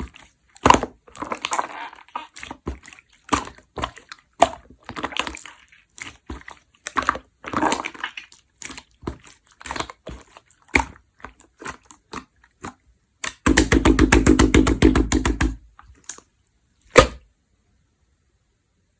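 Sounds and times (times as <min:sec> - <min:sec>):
slime squished by hand: 0:00.0 - 0:16.3, 0:16.9 - 0:17.2
crackling pops of slime: 0:13.2 - 0:16.2, 0:16.9 - 0:17.2
sharp pop: 0:16.9 - 0:17.2.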